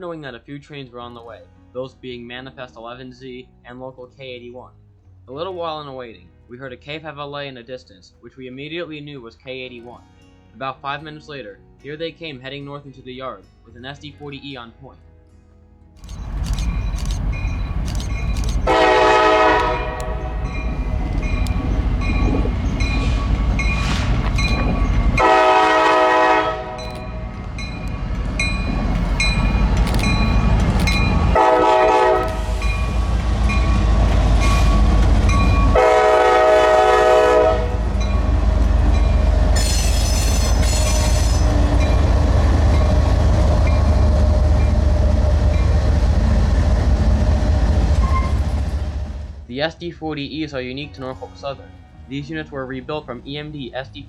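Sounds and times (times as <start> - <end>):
engine and train rumble: 16.0 - 49.6
locomotive air horn: 18.6 - 27.4, 31.3 - 33.1, 35.6 - 39.0
high squeal: 48.0 - 48.7.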